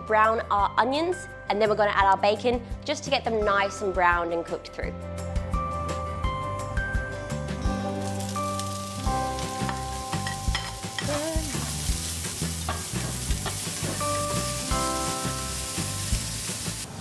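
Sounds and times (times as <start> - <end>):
background music: 0.0 - 17.0
onion sizzling in a frying pan: 8.0 - 17.0.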